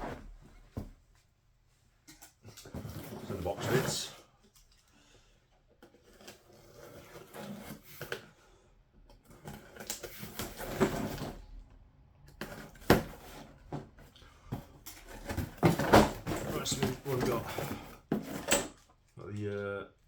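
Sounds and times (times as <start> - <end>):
rustling and light clattering: 0.0 - 8.3, 12.4 - 19.2.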